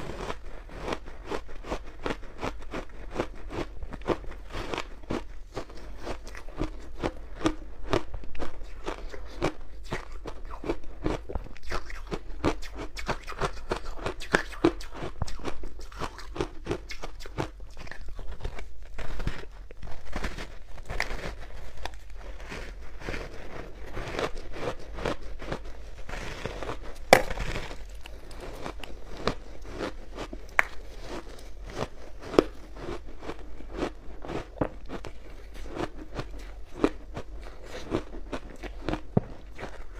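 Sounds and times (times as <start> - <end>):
crunching ice cubes: 26.2 - 39.9.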